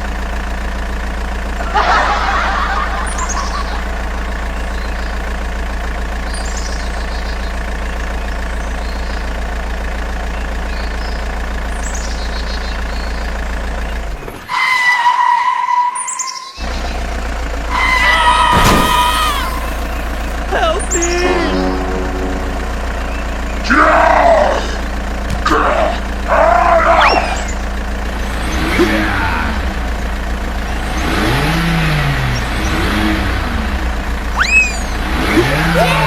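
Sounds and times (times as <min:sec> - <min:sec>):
truck engine idling hum: 0:00.0 - 0:36.0
birds chirping: 0:01.5 - 0:14.1, 0:16.1 - 0:33.1, 0:34.3 - 0:35.2
held horn-like tone: 0:21.0 - 0:24.9.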